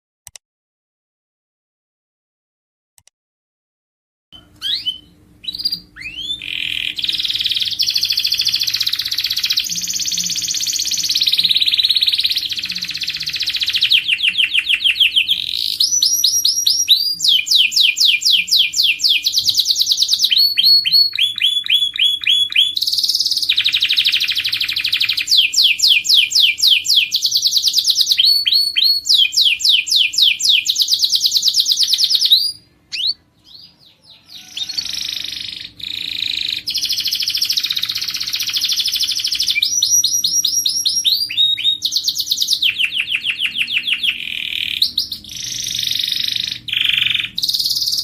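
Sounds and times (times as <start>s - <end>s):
canary singing trills: 4.4s - 48.0s
faint low hum: 4.4s - 48.0s.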